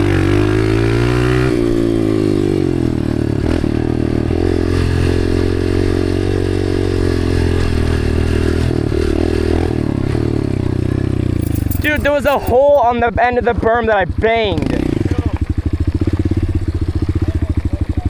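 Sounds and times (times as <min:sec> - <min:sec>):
dirt bike engine revving: 0:00.0 - 0:12.6, 0:13.4 - 0:17.4.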